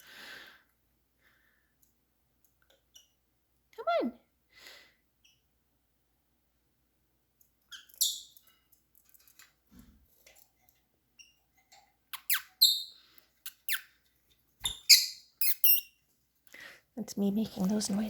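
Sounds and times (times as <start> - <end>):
person squeaking bird chirps: 12.1 - 13.9, 14.6 - 15.9.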